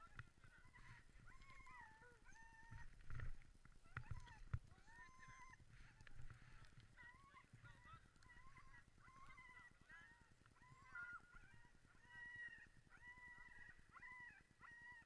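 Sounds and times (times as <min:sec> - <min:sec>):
dogs yelping and whining: 0:00.6 - 0:03.0, 0:07.0 - 0:10.0, 0:10.6 - 0:15.0.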